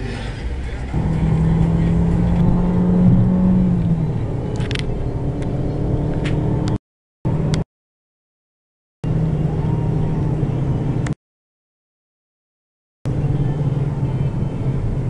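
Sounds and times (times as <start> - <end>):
car engine and road noise: 0.0 - 7.6, 9.0 - 11.2, 13.1 - 15.0.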